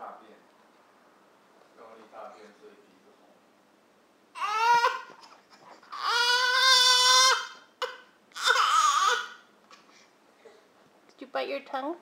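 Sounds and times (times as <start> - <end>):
toddler crying: 4.3 - 9.5.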